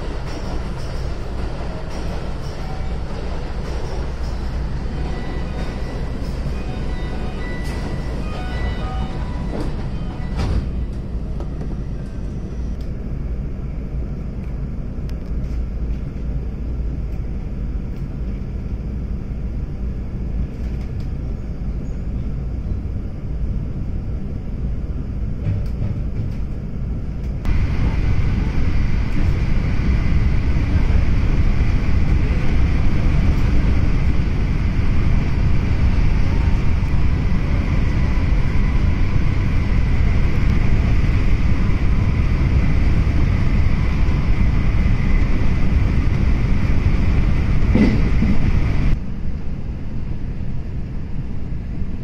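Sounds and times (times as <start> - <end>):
train wheels rumbling on rail: 0.0 - 52.0
train doors thumping shut: 9.1 - 11.8, 25.4 - 26.5, 47.6 - 48.6.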